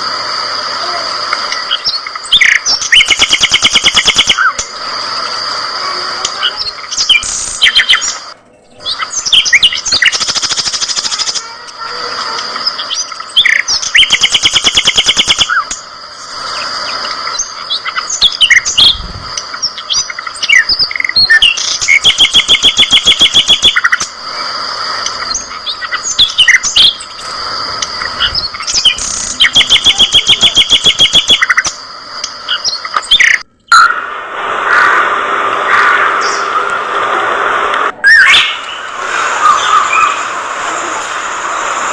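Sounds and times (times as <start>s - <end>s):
fast buzzy trills: 1.6s - 33.4s
budgerigars chattering and chirping: 6.2s - 11.5s, 12.2s - 15.6s.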